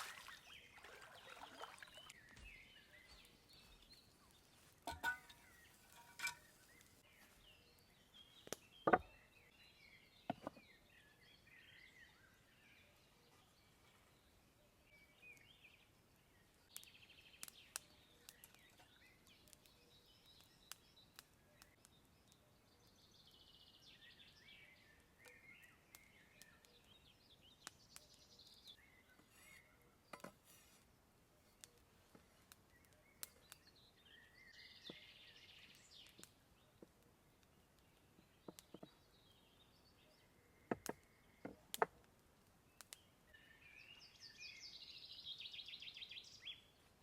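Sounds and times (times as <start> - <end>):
faint birdsong: 0.0 - 47.0.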